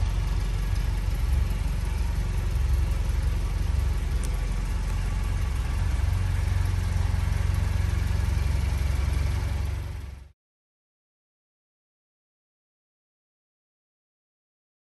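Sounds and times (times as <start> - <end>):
car engine idling: 0.0 - 10.3.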